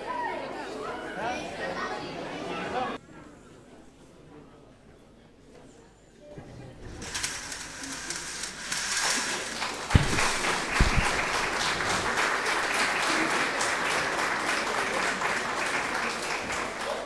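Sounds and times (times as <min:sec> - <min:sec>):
low thumps: 0:07.0 - 0:12.2
audience applauding: 0:07.2 - 0:17.0.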